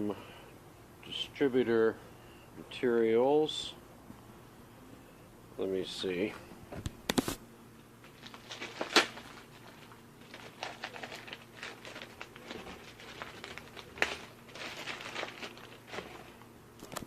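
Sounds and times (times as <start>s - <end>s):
paper and packaging rustling: 8.0s - 17.0s.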